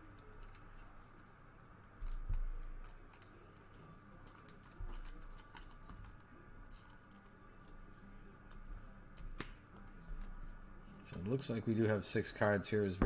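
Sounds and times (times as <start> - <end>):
cards rustling: 2.1 - 7.7.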